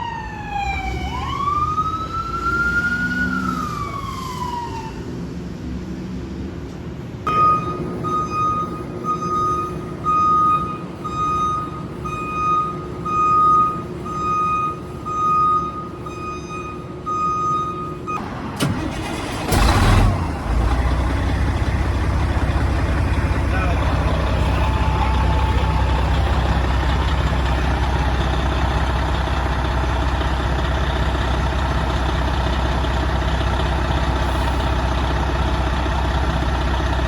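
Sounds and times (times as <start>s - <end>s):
fire truck warning alarm tone: 7.3s - 19.4s, 22.2s - 35.8s
truck engine running: 16.9s - 37.0s.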